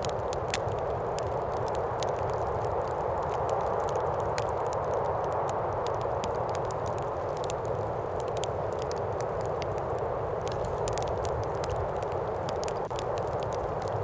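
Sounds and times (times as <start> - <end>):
steady wind: 0.0 - 14.0
wood fire crackling and popping: 0.0 - 14.0.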